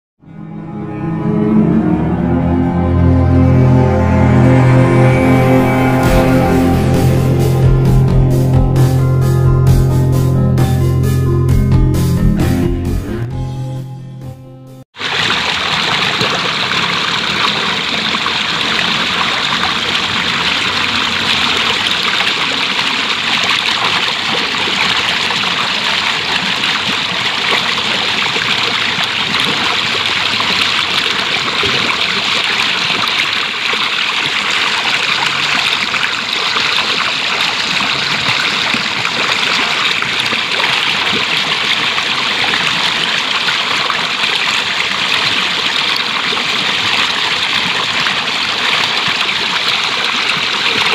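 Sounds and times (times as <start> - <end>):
stream running over rocks: 15.0 - 50.9.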